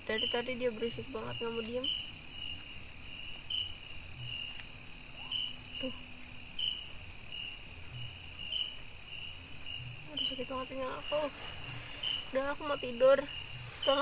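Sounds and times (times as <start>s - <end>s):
cricket chirping: 0.0s - 14.0s
high-pitched insect drone: 0.0s - 14.0s.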